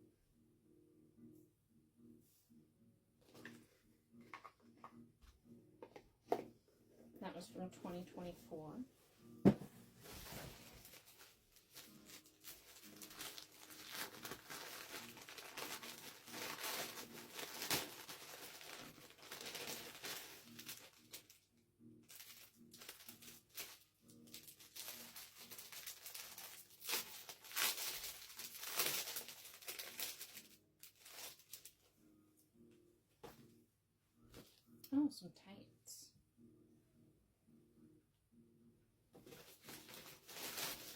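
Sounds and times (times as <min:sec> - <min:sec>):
plastic packaging crinkling: 0:10.0 - 0:21.4, 0:22.1 - 0:31.8, 0:39.2 - 0:40.9.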